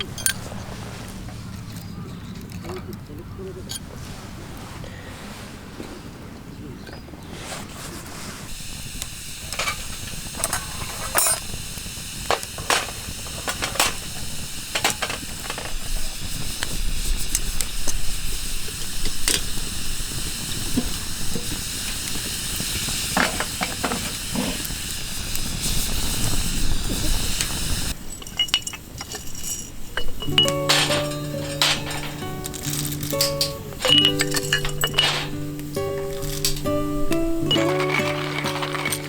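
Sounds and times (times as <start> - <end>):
wood fire crackling: 0.0 - 5.8, 7.3 - 39.0
fire pops: 7.4 - 29.1, 29.8 - 39.0.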